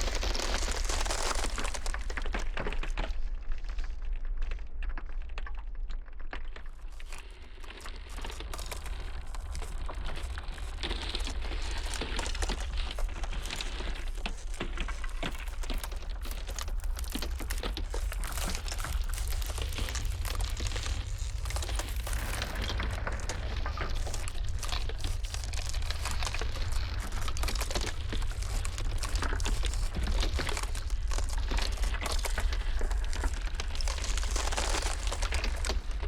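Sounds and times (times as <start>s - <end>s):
ice crackling and snapping: 0.0s - 36.0s
low wind rumble: 16.0s - 36.0s.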